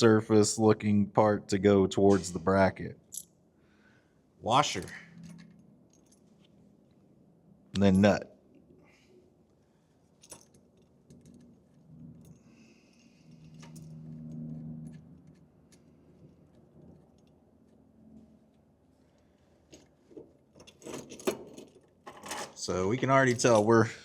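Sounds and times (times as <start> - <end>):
small metal clinks: 5.2 - 6.6, 10.1 - 17.4
low hum: 10.8 - 19.4.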